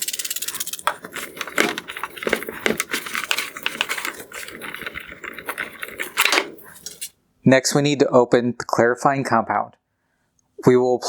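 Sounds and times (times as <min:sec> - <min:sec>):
scuffing and rubbing on plastic: 0:00.8 - 0:07.1.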